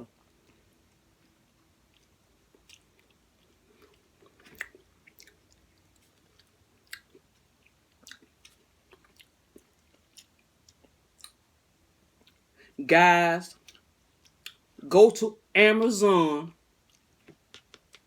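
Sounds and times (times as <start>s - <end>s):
person chewing: 0.3s - 11.4s, 12.1s - 12.5s, 13.6s - 14.7s, 16.8s - 18.0s.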